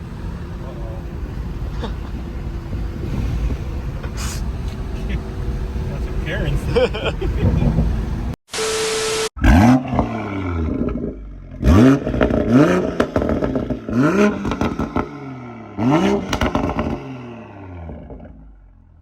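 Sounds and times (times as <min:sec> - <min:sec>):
car engine revving: 0:00.0 - 0:19.0
exhaust crackles and pops: 0:09.8 - 0:15.1, 0:16.2 - 0:17.0.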